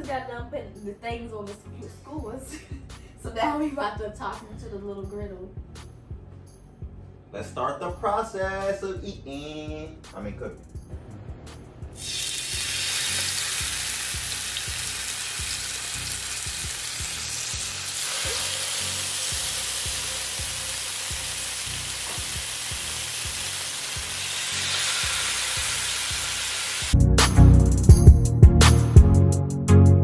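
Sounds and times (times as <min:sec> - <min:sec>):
mushrooms sizzling on griddle: 0:12.0 - 0:27.0
loud music: 0:26.9 - 0:30.0.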